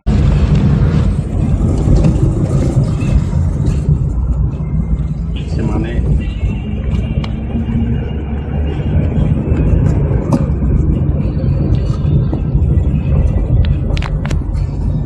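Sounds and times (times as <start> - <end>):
car engine low rumble: 0.0 - 15.0.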